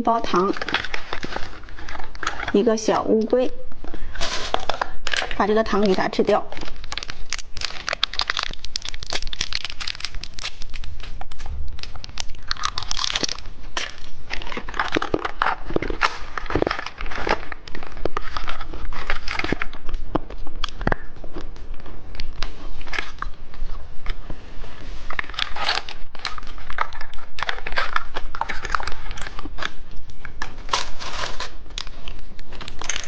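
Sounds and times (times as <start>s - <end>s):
wrapper crinkling: 0.0s - 24.2s, 25.0s - 33.0s
candy crunched and chewed: 0.1s - 2.7s, 3.8s - 24.2s, 25.1s - 33.0s.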